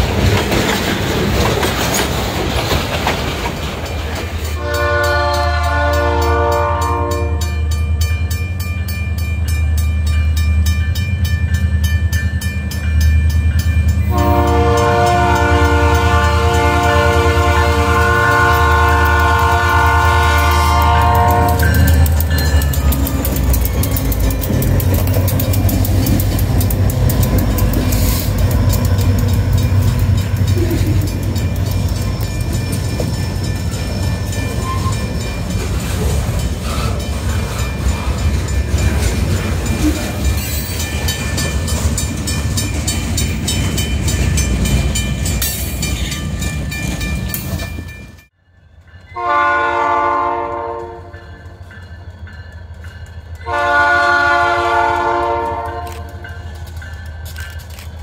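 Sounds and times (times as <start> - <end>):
wheels clicking over rail joints: 0.0 - 5.6, 12.7 - 48.3, 54.9 - 58.0
train rumbling: 0.0 - 58.0
locomotive air horn: 4.6 - 7.6, 14.1 - 22.1, 49.2 - 51.2, 53.5 - 56.2.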